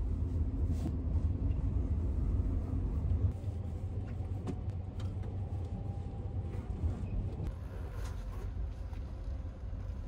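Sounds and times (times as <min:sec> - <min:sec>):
train rumble from inside carriage: 0:00.0 - 0:10.0.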